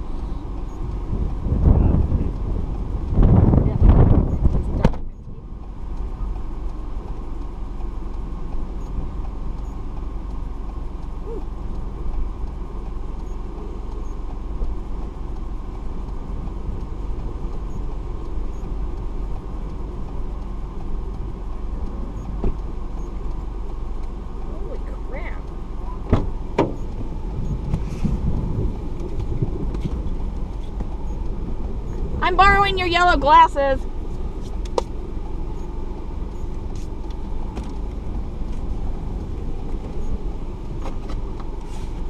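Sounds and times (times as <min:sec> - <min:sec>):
car engine and road noise: 0:00.0 - 0:42.0.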